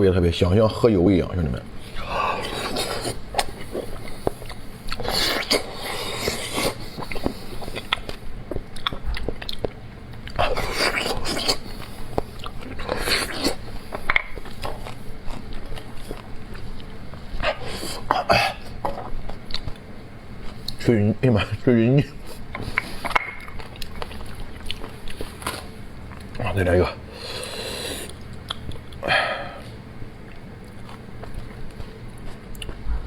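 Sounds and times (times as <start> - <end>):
wet chewing and biting: 1.8 - 20.8, 22.1 - 26.6, 30.2 - 33.0.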